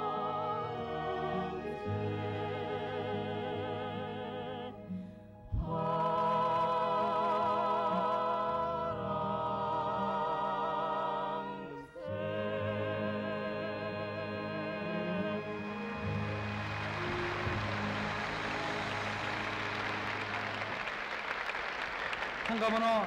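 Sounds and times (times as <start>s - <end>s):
vocal quartet singing: 0.0s - 20.0s
instrumental accompaniment: 11.4s - 21.3s.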